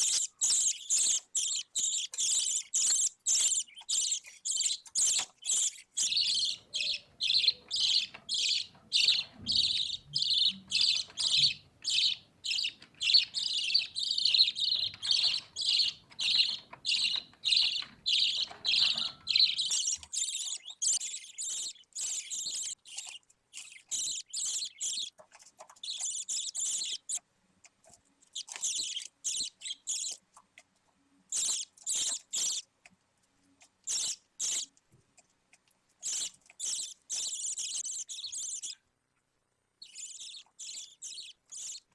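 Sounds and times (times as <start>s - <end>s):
budgerigar chick cheeping: 0.0s - 23.2s.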